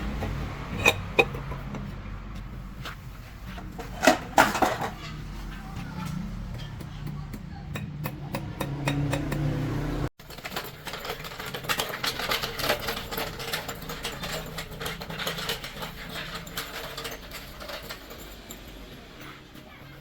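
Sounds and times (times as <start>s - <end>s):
metallic clicking and tapping: 6.2s - 9.7s.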